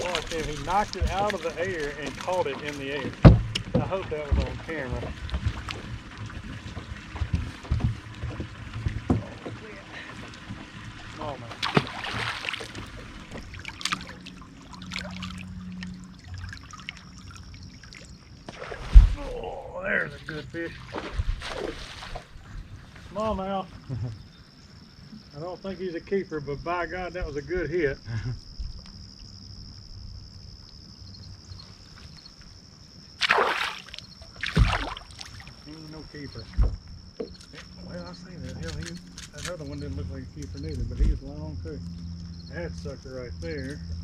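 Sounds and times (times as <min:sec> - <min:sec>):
water lapping against boat: 0:00.0 - 0:23.0, 0:33.1 - 0:36.8.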